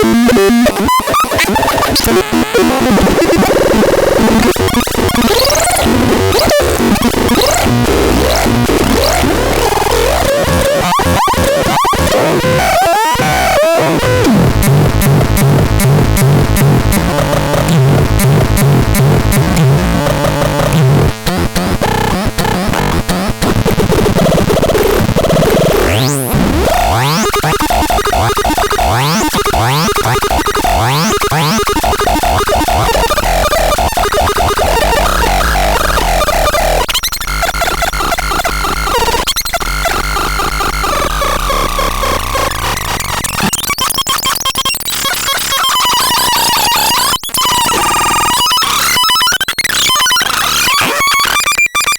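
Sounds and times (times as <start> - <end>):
harsh electronic noise: 0.0 - 51.9
rapid electronic clicks: 0.0 - 51.9
buzzing tones: 25.7 - 41.2.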